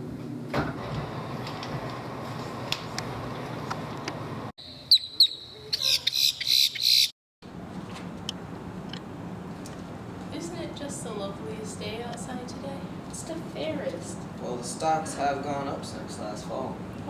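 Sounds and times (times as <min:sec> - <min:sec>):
bird screeching: 0:04.9 - 0:07.1.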